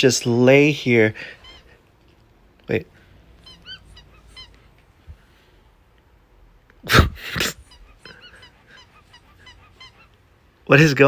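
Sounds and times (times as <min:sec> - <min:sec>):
pet squeaking: 0:01.2 - 0:01.8, 0:03.1 - 0:04.9, 0:07.4 - 0:10.5.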